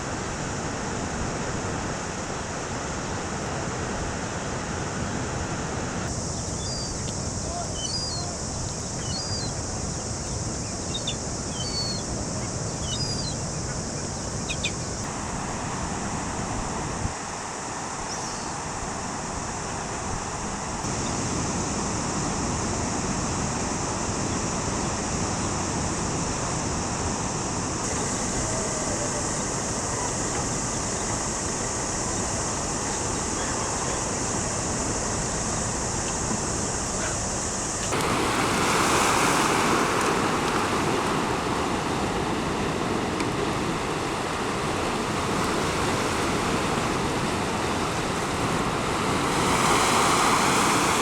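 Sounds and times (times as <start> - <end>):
surf and floodwater roaring: 0.0 - 51.0
bird chirps: 6.4 - 7.1, 7.7 - 9.6, 10.2 - 12.1, 12.7 - 15.0.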